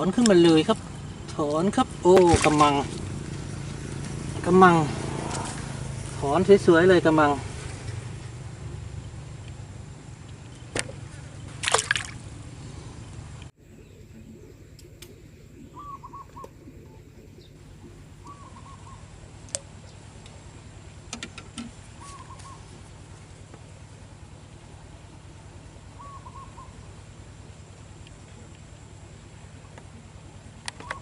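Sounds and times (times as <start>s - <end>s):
water sloshing and dripping: 0.0s - 4.4s, 10.2s - 12.5s
fish splashing out of water: 2.1s - 4.3s, 10.7s - 12.5s
bird hooting call: 13.8s - 19.2s, 21.9s - 22.8s, 25.9s - 26.9s, 30.8s - 31.0s.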